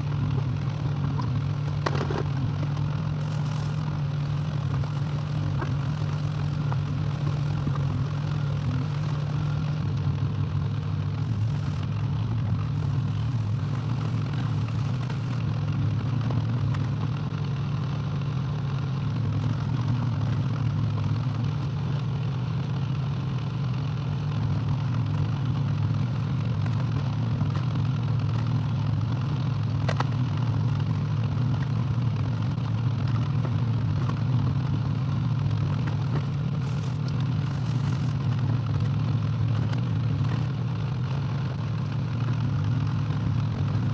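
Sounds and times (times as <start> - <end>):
excavator engine running: 0.0 - 15.7, 36.6 - 38.9.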